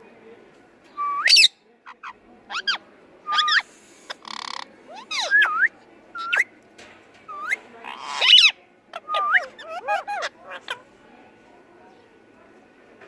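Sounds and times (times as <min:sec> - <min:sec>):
parakeet chattering: 0:01.3 - 0:05.6, 0:07.3 - 0:10.9.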